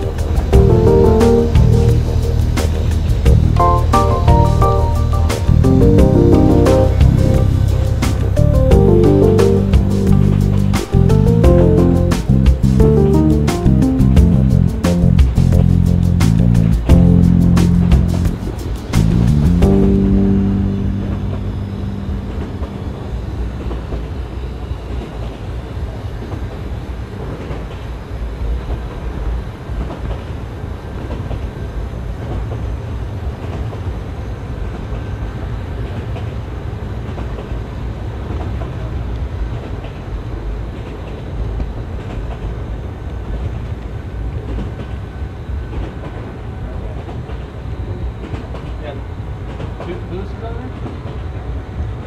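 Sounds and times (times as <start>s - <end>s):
music track: 0.0s - 23.8s
model train running on track: 23.0s - 52.0s.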